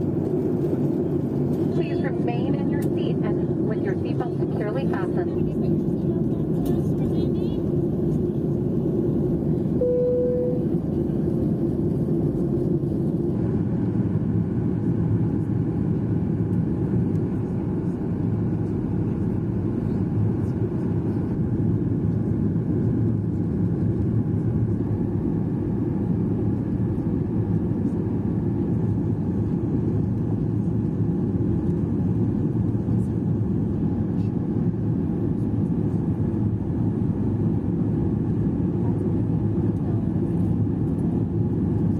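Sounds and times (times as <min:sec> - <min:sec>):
airliner cabin engine rumble: 0:00.0 - 0:41.9
short single tone: 0:09.8 - 0:10.8.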